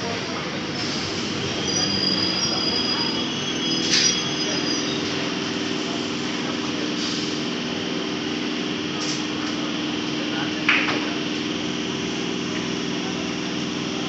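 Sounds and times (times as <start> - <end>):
train wheels squealing: 1.0 - 5.6.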